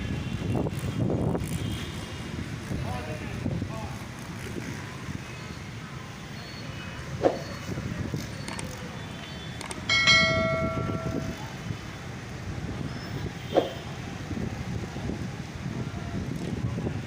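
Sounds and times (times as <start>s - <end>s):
road traffic rumble: 0.0s - 17.0s
loud bell-like ring: 9.9s - 11.7s.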